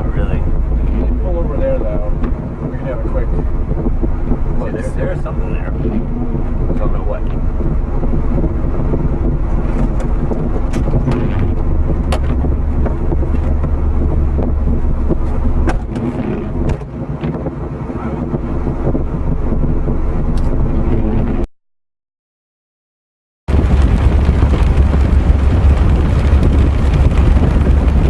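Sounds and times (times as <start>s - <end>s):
car engine rumble: 0.0s - 21.5s, 23.5s - 28.0s
sharp knocks and clicks: 2.2s - 2.7s, 9.3s - 13.8s, 14.4s - 17.6s.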